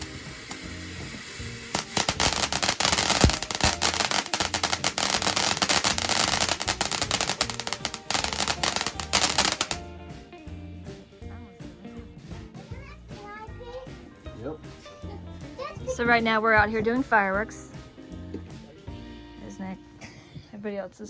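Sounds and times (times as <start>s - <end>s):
firework crackling: 0.0s - 9.9s
background music with beat: 0.0s - 20.2s.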